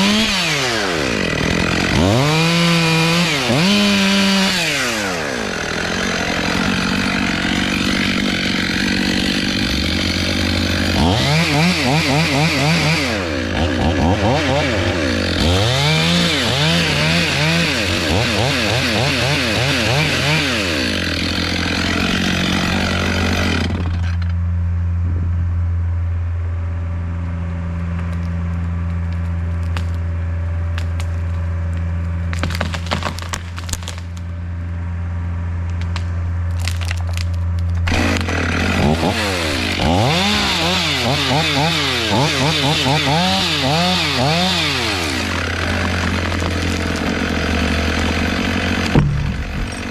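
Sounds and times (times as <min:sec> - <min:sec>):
chainsaw cutting wood: 0:00.0 - 0:24.4, 0:32.3 - 0:34.2, 0:35.7 - 0:49.9
wood snapping: 0:27.9 - 0:30.1, 0:30.7 - 0:34.3, 0:35.6 - 0:42.3, 0:43.6 - 0:49.9.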